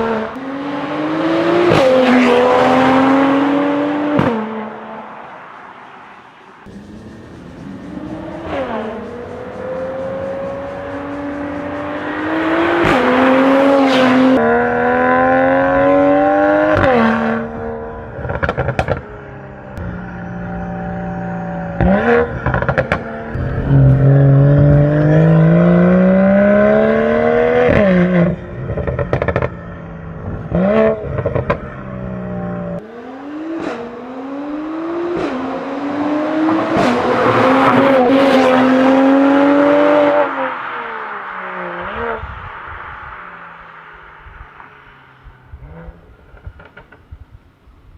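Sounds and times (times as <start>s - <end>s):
car engine revving through gears: 0.0s - 4.9s, 6.6s - 19.0s, 20.4s - 29.5s, 30.2s - 46.9s
exhaust crackles and pops: 45.8s - 47.4s.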